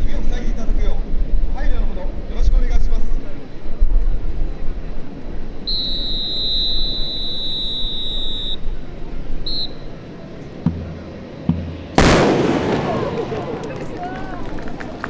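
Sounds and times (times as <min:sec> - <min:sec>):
high whistle blasts: 0:05.7 - 0:08.7, 0:09.4 - 0:10.0
salute gunshot with echo: 0:12.0 - 0:13.7.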